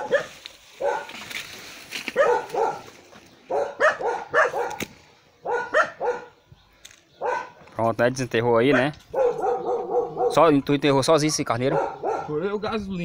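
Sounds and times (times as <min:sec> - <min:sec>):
dog barking: 0:00.0 - 0:01.2, 0:02.1 - 0:02.9, 0:03.5 - 0:04.8, 0:05.4 - 0:06.4, 0:07.2 - 0:07.6, 0:08.6 - 0:10.6, 0:11.6 - 0:12.4.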